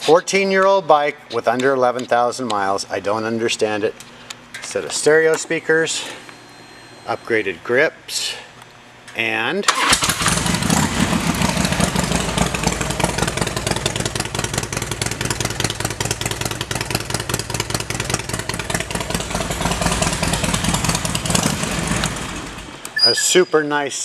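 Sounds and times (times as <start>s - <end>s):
motorcycle engine idling: 10.2s - 22.8s.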